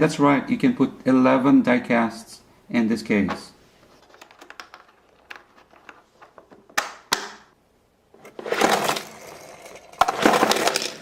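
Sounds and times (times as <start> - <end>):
toy cars clattering and scraping: 4.0 - 6.5, 8.2 - 11.0.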